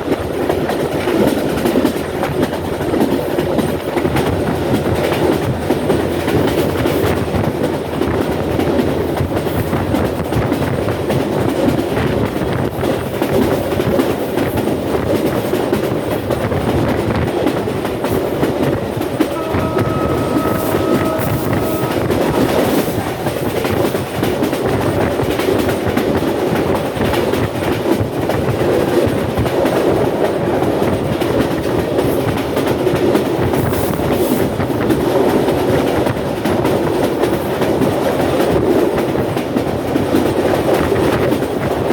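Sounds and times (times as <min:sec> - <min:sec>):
train wheels clacking on rails: 0:00.0 - 0:41.9.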